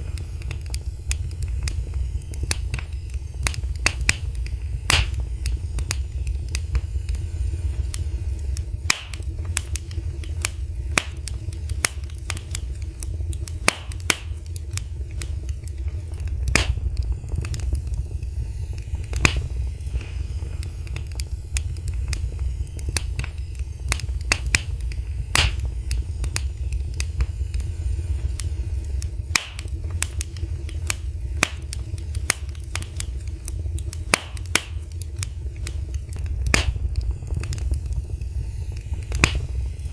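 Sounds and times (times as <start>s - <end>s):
fire crackling and popping: 0.0s - 39.9s
low fire rumble: 0.0s - 39.9s.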